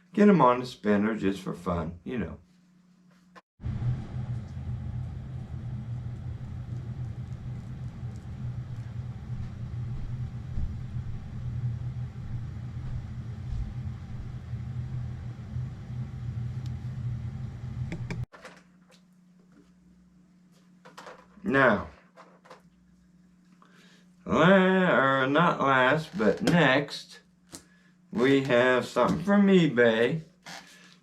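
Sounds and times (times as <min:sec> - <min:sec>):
turntable motor hum: 0:03.6 - 0:18.3.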